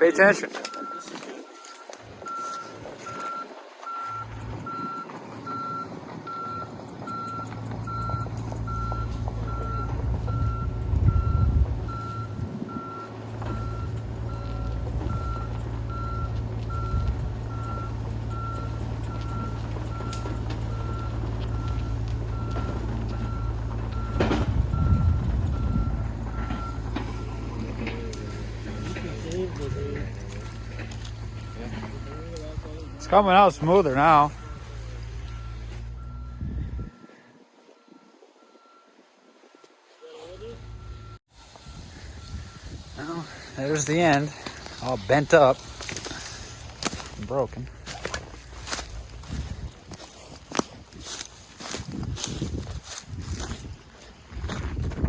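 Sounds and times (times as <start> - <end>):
diesel engine under load: 0.0 - 39.6, 40.2 - 55.0
electronic warning beeps: 0.2 - 46.2.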